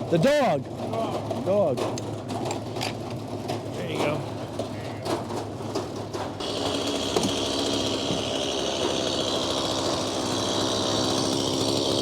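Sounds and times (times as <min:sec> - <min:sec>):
circular saw cutting log: 0:06.3 - 0:12.0.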